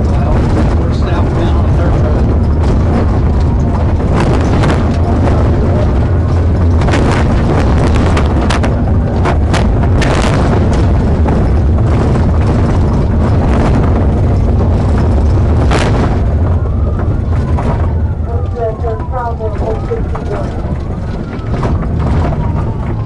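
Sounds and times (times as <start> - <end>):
sharp knocks: 0.0 - 18.1
road noise: 0.0 - 23.0
vehicle rumbling at speed: 0.0 - 23.0.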